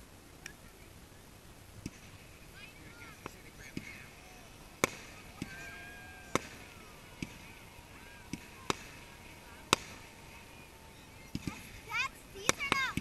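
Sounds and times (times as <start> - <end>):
fireworks bangs: 1.8 - 13.0.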